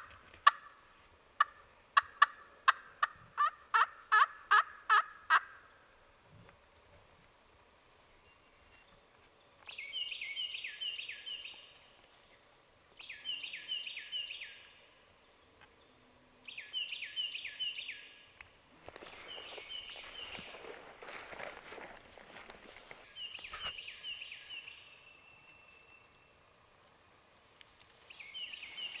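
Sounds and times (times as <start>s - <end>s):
turkey call yelping: 1.4s - 5.5s
rustling: 18.7s - 23.8s.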